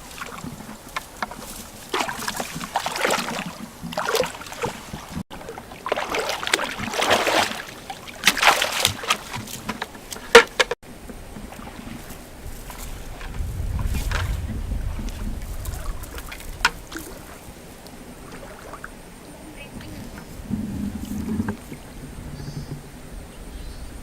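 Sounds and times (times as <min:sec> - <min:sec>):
water sloshing and splashing: 0:00.0 - 0:23.0.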